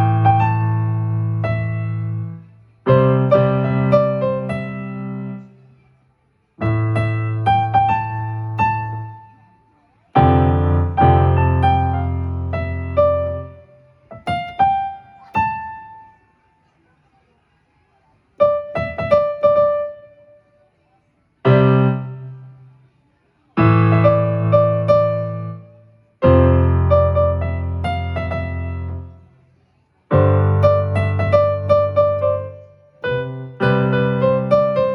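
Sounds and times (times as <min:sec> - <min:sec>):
electronic keyboard piano notes: 0:00.0 - 0:05.5, 0:06.6 - 0:09.2, 0:10.2 - 0:16.1, 0:18.4 - 0:20.2, 0:23.6 - 0:29.2, 0:30.1 - 0:34.9.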